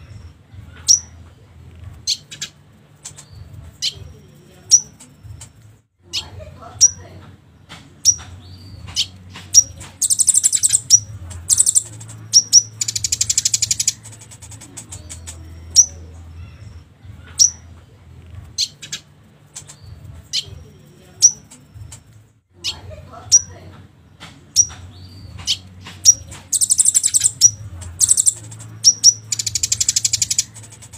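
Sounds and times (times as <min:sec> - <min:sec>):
bird chirping: 0:08.0 - 0:16.0, 0:24.6 - 0:30.9
bird rattling trills: 0:10.0 - 0:15.4, 0:25.5 - 0:30.9.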